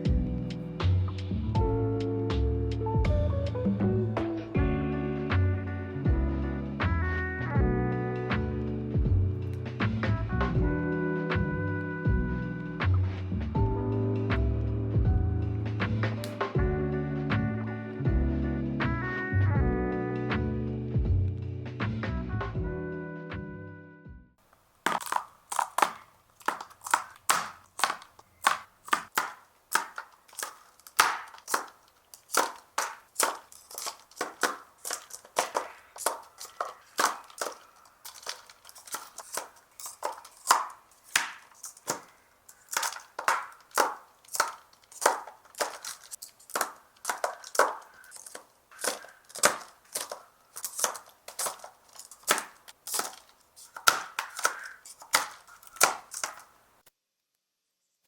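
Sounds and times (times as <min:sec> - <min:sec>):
sharp plastic clicks and taps: 0:24.9 - 0:56.5.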